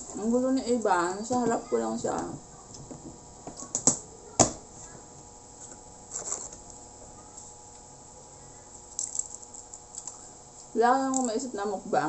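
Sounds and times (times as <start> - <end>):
faint steady hum: 0.0 - 12.0
salad crunching: 8.8 - 11.3.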